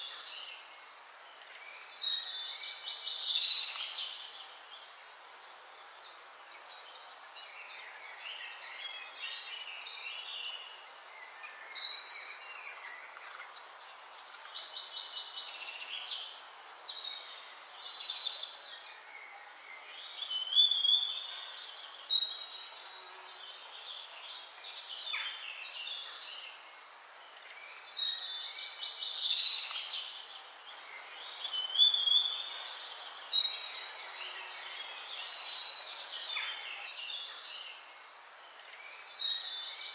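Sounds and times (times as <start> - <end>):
birds singing: 0.0 - 39.9
steady hiss: 0.0 - 39.9.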